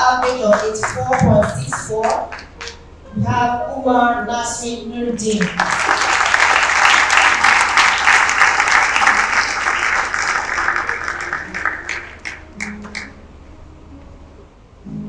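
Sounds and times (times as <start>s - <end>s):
audience applauding: 0.0s - 2.8s, 5.4s - 13.2s.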